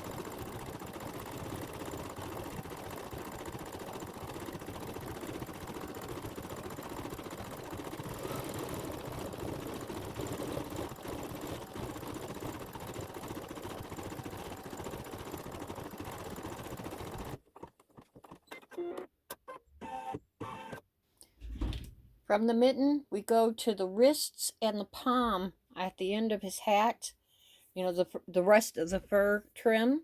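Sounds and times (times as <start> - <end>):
embroidery machine needle chatter: 0.0 - 17.4.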